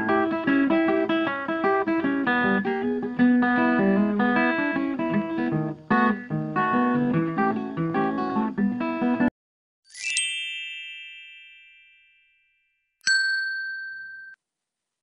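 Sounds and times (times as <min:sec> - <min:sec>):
acoustic guitar music: 0:00.0 - 0:09.3
shimmering chime: 0:09.9 - 0:12.6
bright ding: 0:10.0 - 0:14.4.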